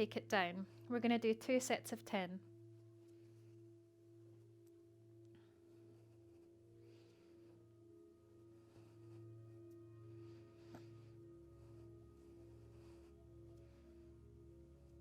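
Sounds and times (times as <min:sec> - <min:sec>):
ambient music drone: 0:00.0 - 0:15.0.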